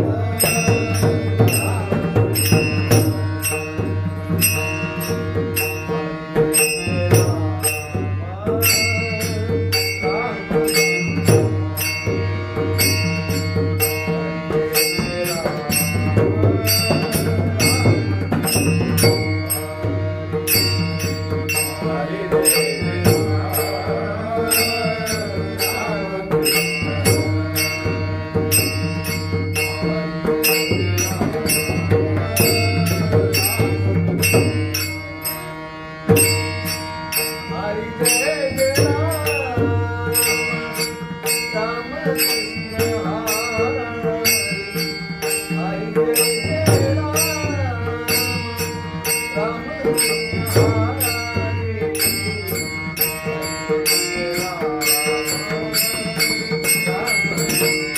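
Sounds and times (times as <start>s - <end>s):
hand cymbals striking beat: 0.0s - 57.9s
instrumental drone: 0.0s - 57.9s
man singing devotional melody: 0.0s - 57.9s.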